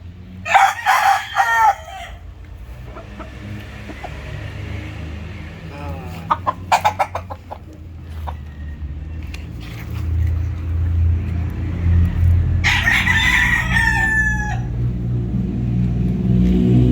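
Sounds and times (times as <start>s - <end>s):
rooster crowing: 0.4s - 2.3s, 8.1s - 9.8s, 11.7s - 14.9s
chickens clucking: 1.4s - 10.0s
low rumble: 13.4s - 16.9s.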